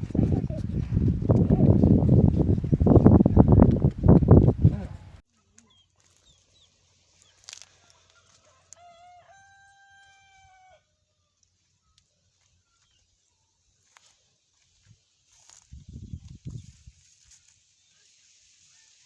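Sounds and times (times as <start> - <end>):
rooster crowing: 7.8 - 10.8.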